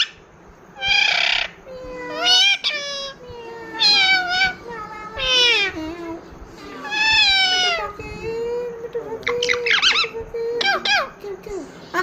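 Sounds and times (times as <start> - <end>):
parakeet warbling chirps: 0.0 - 0.2, 0.8 - 5.8, 6.8 - 8.0, 9.2 - 11.2
parakeet calling: 0.0 - 8.2, 9.1 - 11.2.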